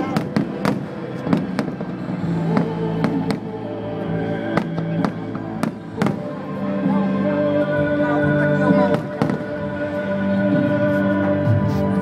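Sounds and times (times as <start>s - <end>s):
fireworks banging: 0.0s - 3.5s, 8.9s - 9.7s
music: 0.0s - 12.0s.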